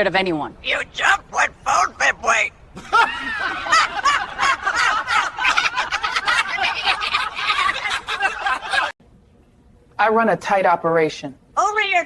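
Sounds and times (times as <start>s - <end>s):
stifled snickering laughter: 2.8s - 8.9s.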